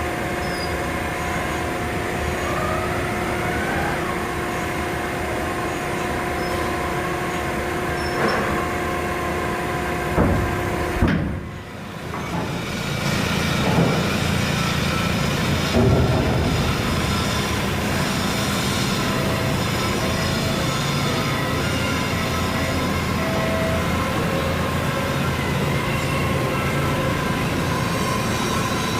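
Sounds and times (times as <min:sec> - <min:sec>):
machinery humming: 0:00.0 - 0:28.9
sharp knocks: 0:10.1 - 0:11.4.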